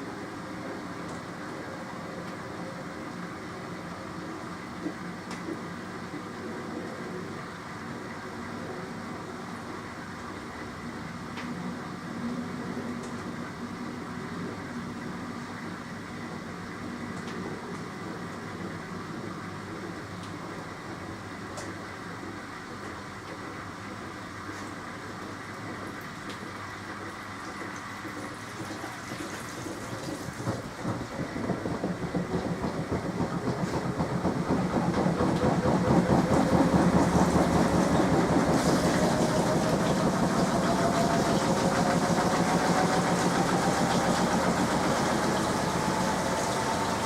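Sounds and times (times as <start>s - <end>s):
washing machine drum spinning: 27.6s - 47.0s.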